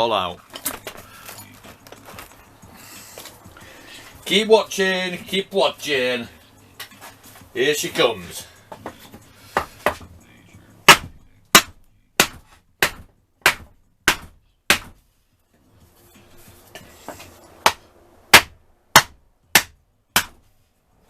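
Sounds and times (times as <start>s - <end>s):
hammer striking metal: 10.9s - 15.0s, 17.1s - 20.4s.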